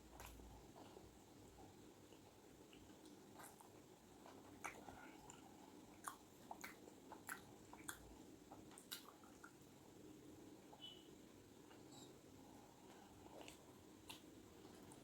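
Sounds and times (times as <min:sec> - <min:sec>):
person chewing food: 0:00.1 - 0:01.0, 0:02.0 - 0:09.6, 0:12.6 - 0:15.0.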